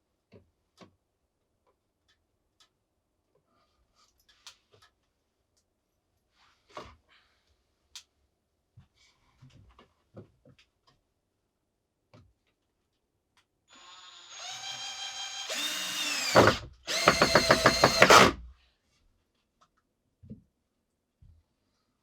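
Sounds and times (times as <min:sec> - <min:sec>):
power drill running: 0:13.7 - 0:18.4.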